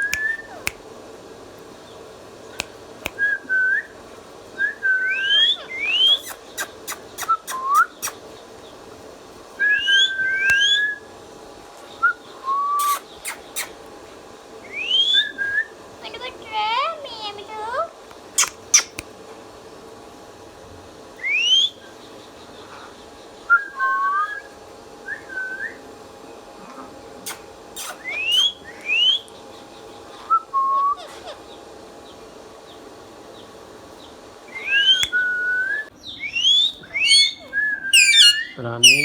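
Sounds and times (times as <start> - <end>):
parakeet whistling: 0.0 - 0.7, 4.6 - 8.2, 9.6 - 11.0, 14.7 - 15.7, 18.4 - 19.0, 27.8 - 29.3, 34.5 - 39.0
sharp clicks: 18.1 - 19.1.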